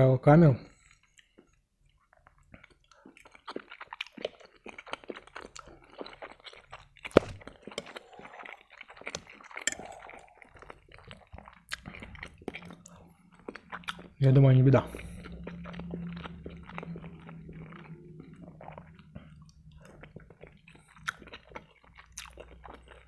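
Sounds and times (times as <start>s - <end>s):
wet mouth chewing: 1.0s - 23.0s.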